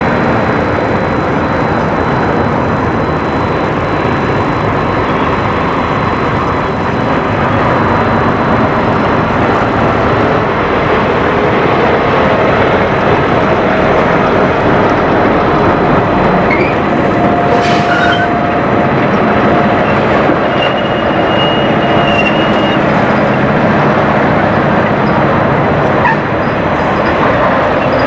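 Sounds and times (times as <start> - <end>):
heavy vehicles rumbling past: 0.0 - 28.0.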